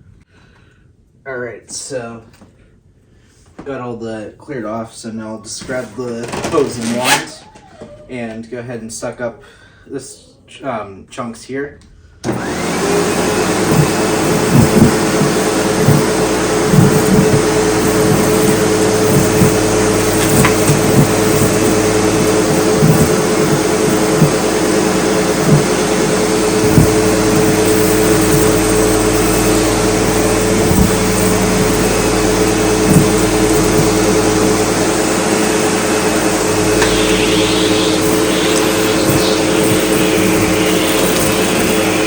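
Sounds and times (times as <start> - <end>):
vacuum cleaner running: 12.2 - 42.0
debris knocking in vacuum hose: 12.3 - 42.0.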